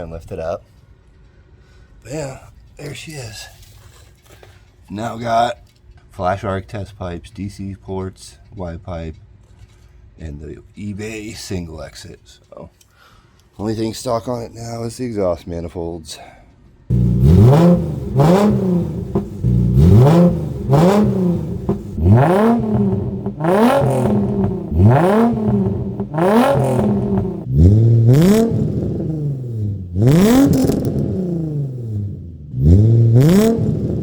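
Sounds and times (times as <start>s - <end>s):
car engine revving: 16.9s - 34.0s.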